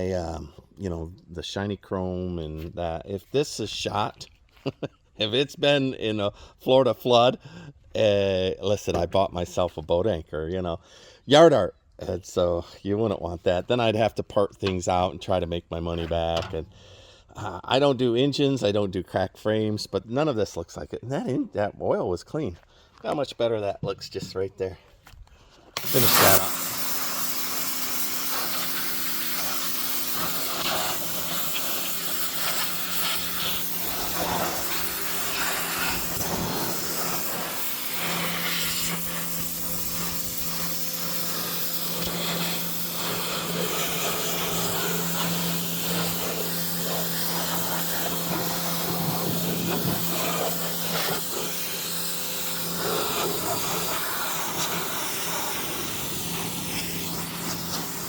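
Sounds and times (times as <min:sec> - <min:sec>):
small machine humming: 0:25.8 - 0:58.0.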